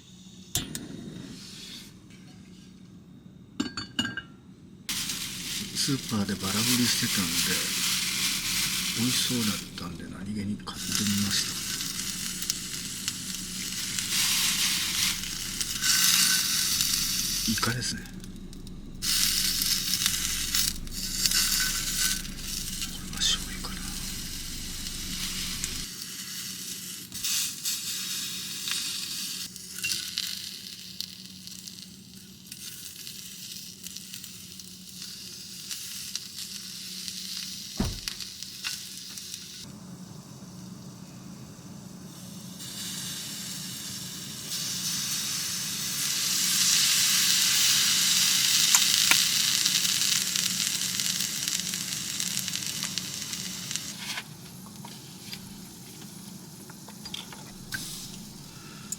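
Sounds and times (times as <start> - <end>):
squid sizzling in a frying pan: 4.9 - 9.9, 10.8 - 58.9.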